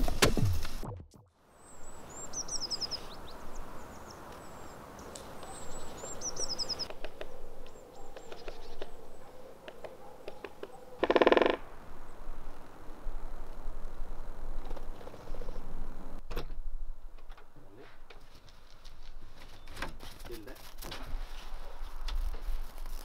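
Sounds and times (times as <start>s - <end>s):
small birds chirping: 1.5s - 12.3s.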